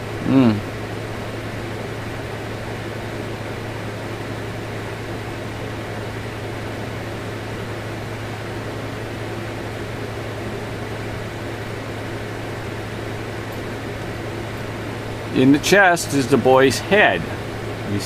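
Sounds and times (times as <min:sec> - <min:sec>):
fan machine humming with hiss: 0:00.0 - 0:18.0.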